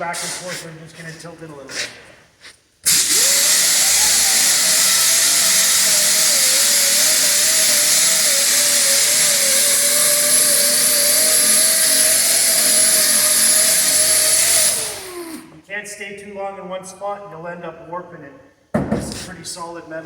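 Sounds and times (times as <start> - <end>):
rotary sander grinding metal: 2.9 - 15.5.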